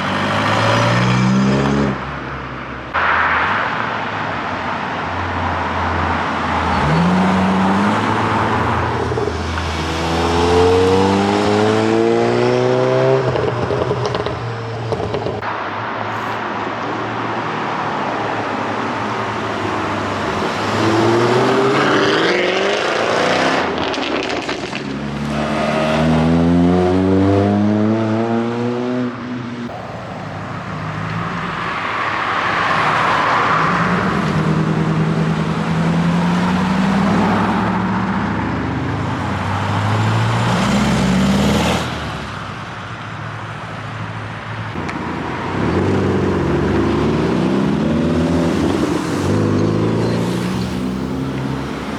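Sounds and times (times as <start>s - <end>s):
cars accelerating past: 0.0s - 42.5s, 44.6s - 51.9s.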